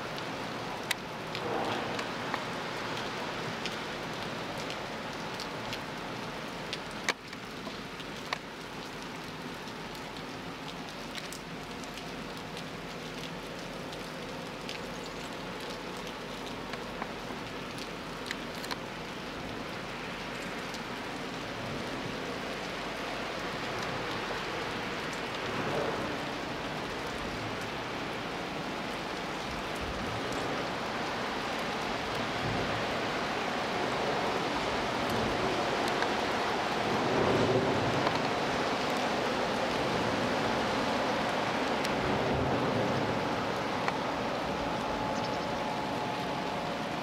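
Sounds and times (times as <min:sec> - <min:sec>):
raindrops ticking: 0:00.0 - 0:47.0
steady rain falling: 0:00.0 - 0:47.0.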